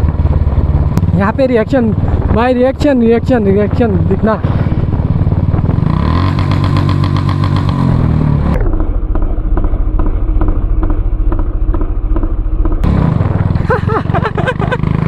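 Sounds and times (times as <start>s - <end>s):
motorcycle engine thudding: 3.7s - 15.0s
sharp exhaust pops: 3.8s - 15.0s.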